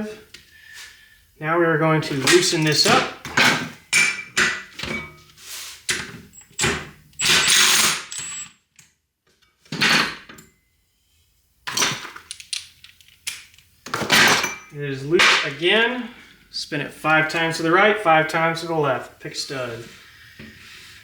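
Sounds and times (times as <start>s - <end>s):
metal tools clanking: 2.1s - 5.2s, 13.9s - 16.0s.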